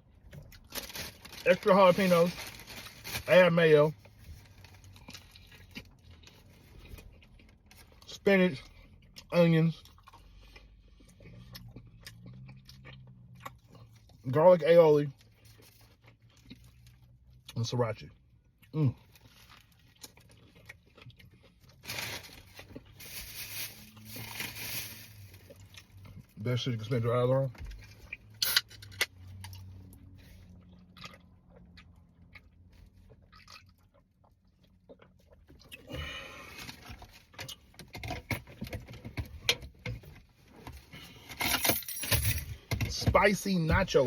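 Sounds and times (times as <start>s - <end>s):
paper wrapper rustling: 0.6s - 3.3s, 21.8s - 25.5s
chewing sandwich: 4.0s - 14.3s, 15.1s - 23.0s, 27.8s - 37.8s.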